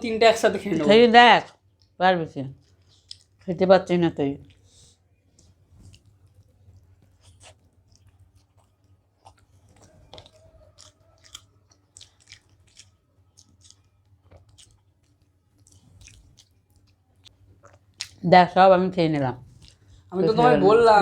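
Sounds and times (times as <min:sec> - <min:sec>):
wet chewing and mouth smacks: 0:02.6 - 0:03.5, 0:04.4 - 0:18.2, 0:19.4 - 0:20.1.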